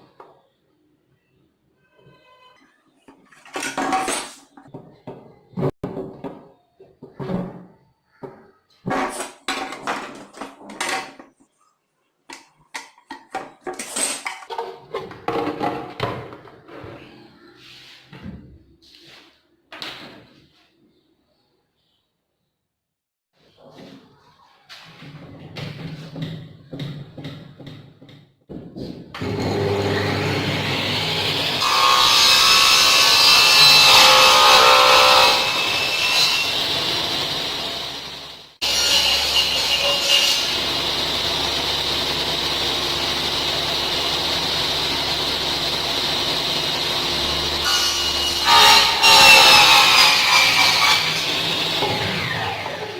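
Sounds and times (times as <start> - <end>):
objects clattering on work surface: 3.0 - 11.6, 12.3 - 17.2
power tool rasping: 29.2 - 52.8.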